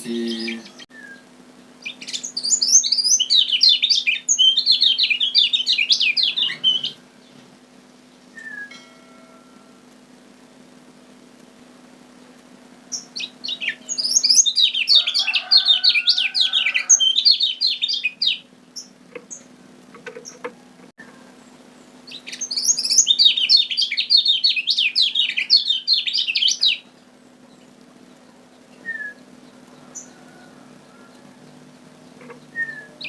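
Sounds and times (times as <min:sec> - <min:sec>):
bird chirping rapidly: 0:01.8 - 0:07.0, 0:12.9 - 0:19.5, 0:22.0 - 0:27.0.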